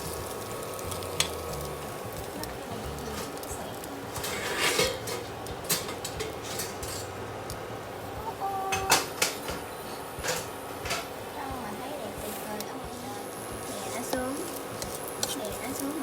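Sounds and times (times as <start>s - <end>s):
utensil scraping frying pan: 0.0s - 7.3s, 13.6s - 16.0s
food frying: 0.0s - 16.0s.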